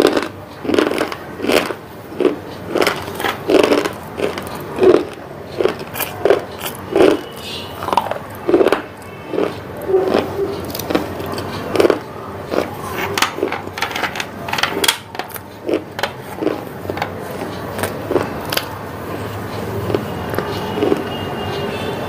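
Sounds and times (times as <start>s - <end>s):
person chewing and swallowing: 0.0s - 13.7s, 15.3s - 18.6s.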